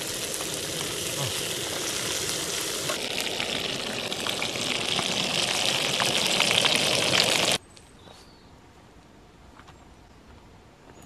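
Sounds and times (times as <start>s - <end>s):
food sizzling in a pan: 0.0s - 7.6s
faint outdoor background: 0.0s - 11.0s.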